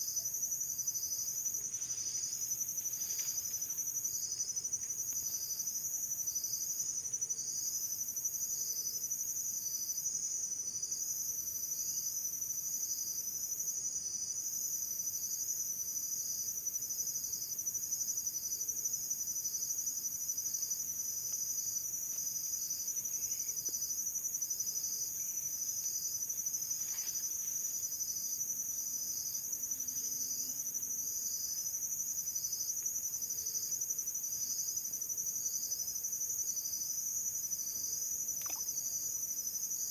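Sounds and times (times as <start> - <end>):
crickets trilling: 0.0 - 8.4, 18.0 - 39.9
short insect chirp: 20.6 - 24.1, 37.4 - 39.9.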